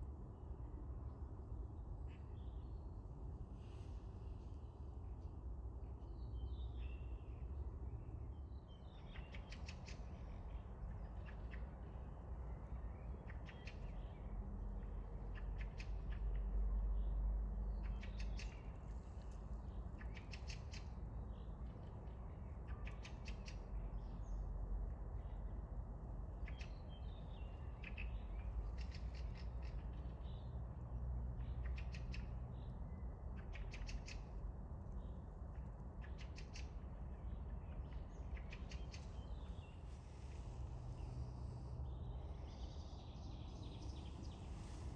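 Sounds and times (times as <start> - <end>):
rapid clicking bird calls: 27.8 - 30.0, 33.4 - 34.4, 36.0 - 36.8.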